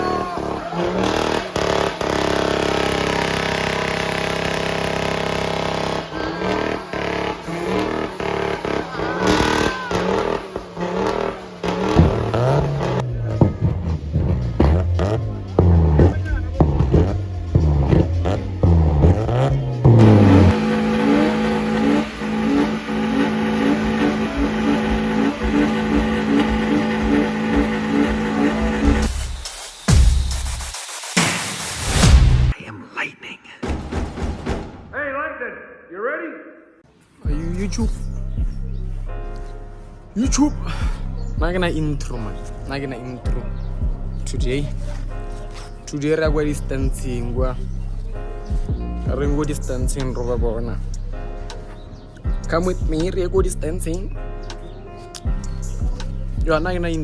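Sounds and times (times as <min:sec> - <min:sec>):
car engine revving: 0:00.0 - 0:30.8.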